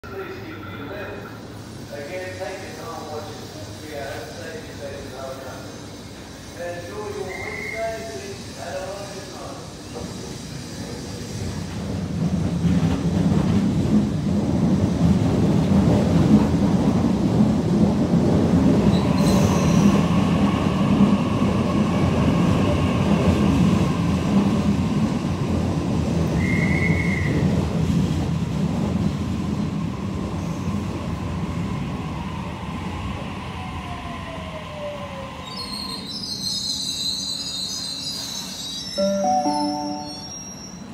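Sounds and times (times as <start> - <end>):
short high squeal: 35.6 - 40.9.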